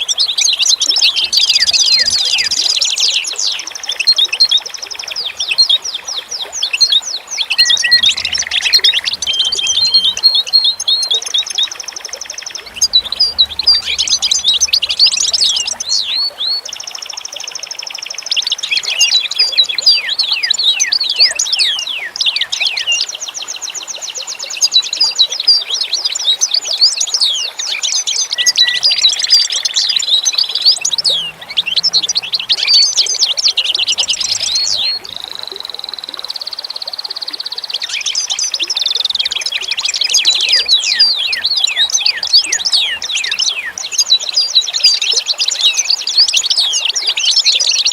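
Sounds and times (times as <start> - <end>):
songbirds chirping and twittering: 0.0 - 47.9
buzzy bird trills: 7.4 - 17.0, 28.4 - 45.2.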